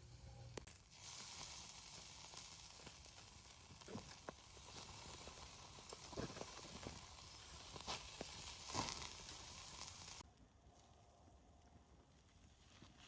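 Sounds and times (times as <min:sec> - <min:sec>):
food sizzling over campfire: 0:00.0 - 0:10.3
fire crackling and popping: 0:00.6 - 0:10.3.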